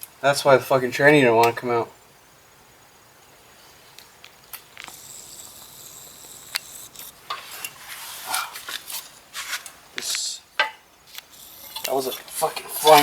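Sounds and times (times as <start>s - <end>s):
metal scraping: 11.3s - 13.0s.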